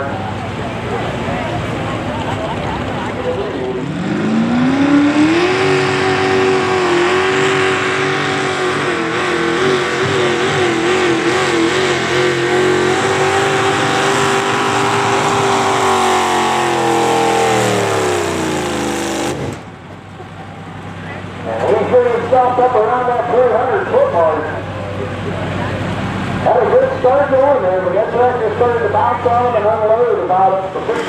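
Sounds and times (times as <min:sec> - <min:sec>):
tractor engine at full throttle: 0:00.0 - 0:31.0.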